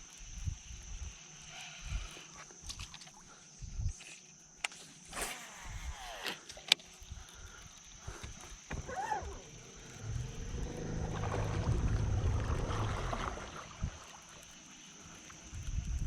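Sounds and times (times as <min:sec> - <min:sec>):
boat motor humming: 0:08.6 - 0:14.8.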